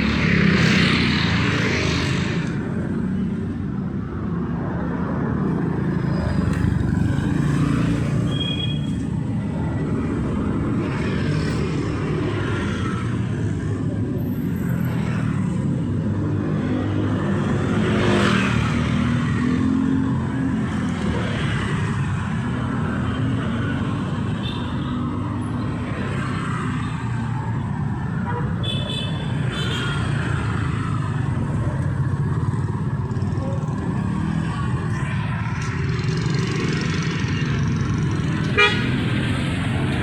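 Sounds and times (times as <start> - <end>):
vehicles passing by: 0.0 - 40.0
low rumble of engines: 30.2 - 40.0.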